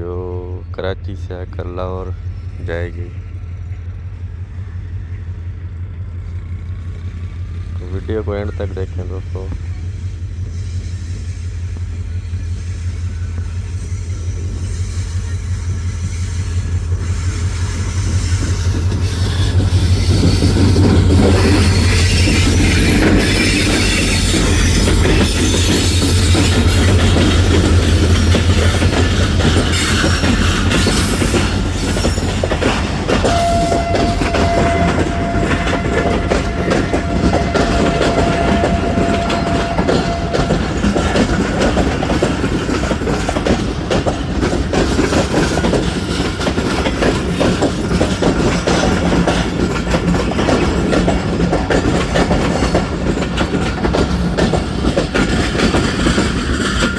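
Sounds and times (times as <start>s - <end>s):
locomotive engine hum: 0.0s - 56.9s
train coaches clattering over rails: 0.0s - 56.9s
train wheel squeal: 0.0s - 56.9s.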